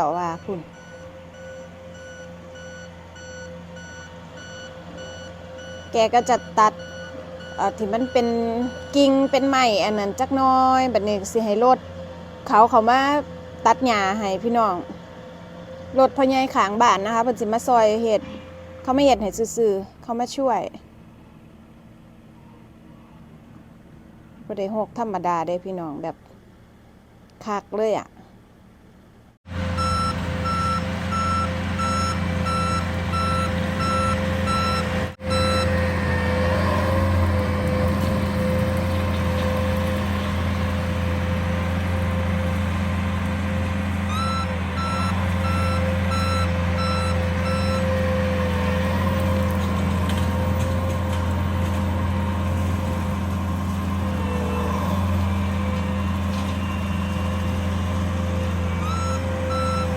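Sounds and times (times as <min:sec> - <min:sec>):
reversing alarm beeping: 0:00.0 - 0:11.0, 0:29.6 - 0:37.2, 0:44.0 - 0:49.3, 0:54.1 - 0:59.9
mower engine running: 0:29.5 - 0:59.9.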